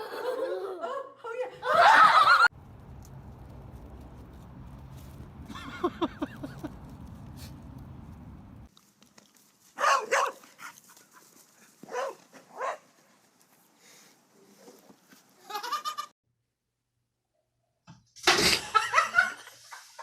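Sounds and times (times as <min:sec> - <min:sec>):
low steady rumble: 0:02.5 - 0:08.7.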